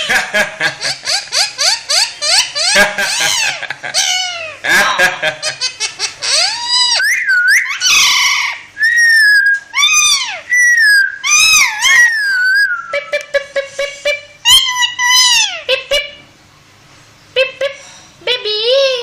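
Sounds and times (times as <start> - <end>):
parrot whistling and screeching: 1.1 - 4.5, 6.0 - 13.1, 14.4 - 15.7.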